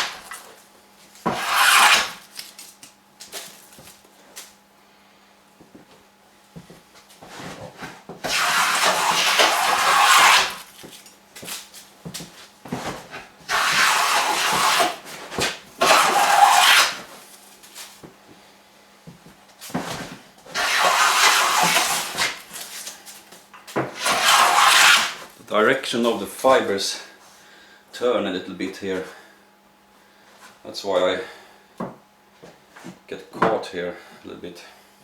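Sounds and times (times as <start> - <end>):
hand plane rasping on wood: 1.3 - 2.2, 8.3 - 10.6, 13.5 - 15.0, 15.8 - 17.0, 20.6 - 22.3, 24.0 - 25.2.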